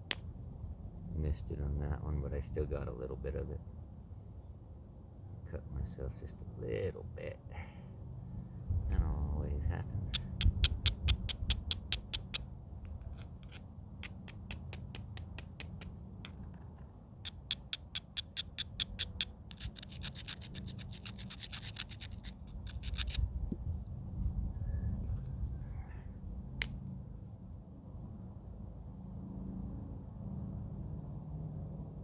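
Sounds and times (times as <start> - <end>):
stone scraping flint edge: 10.1 - 23.6.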